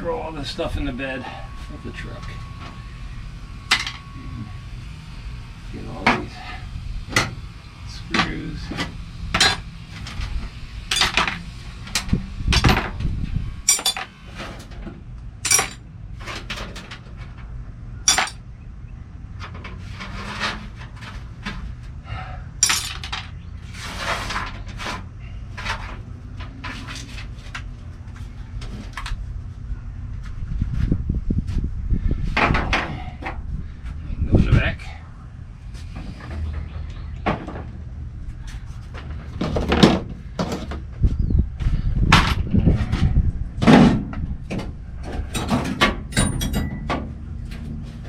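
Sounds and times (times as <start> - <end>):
metal screws clinking: 10.9 - 11.2, 13.7 - 14.1, 15.4 - 15.8, 18.1 - 18.4, 22.6 - 23.2.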